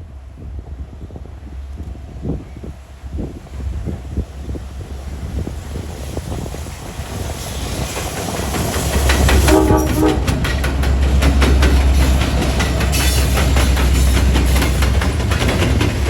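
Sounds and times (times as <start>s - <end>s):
train passing: 0.0s - 16.0s
wheels clattering over rail joints: 5.4s - 16.0s
train horn blast: 9.3s - 10.6s.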